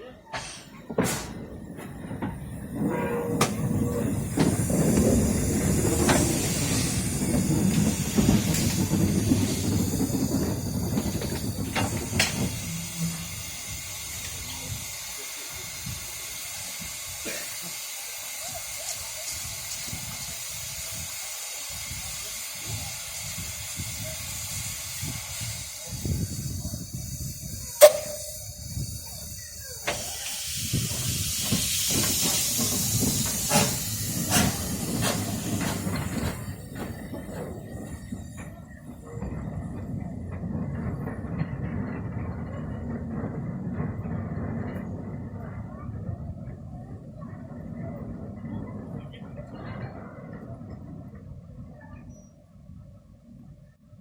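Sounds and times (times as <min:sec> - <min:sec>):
steam locomotive rumbling: 0:00.0 - 0:54.0
steam hissing: 0:00.3 - 0:39.9.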